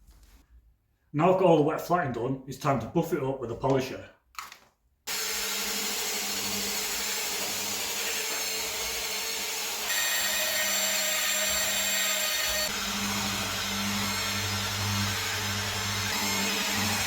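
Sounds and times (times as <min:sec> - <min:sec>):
machine polisher running: 0:05.1 - 0:17.0.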